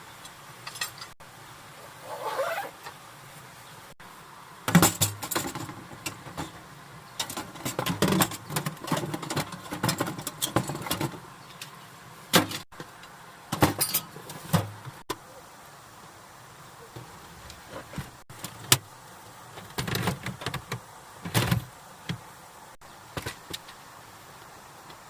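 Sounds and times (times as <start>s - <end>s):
objects clicking and rattling: 4.7s - 6.6s, 7.2s - 11.2s.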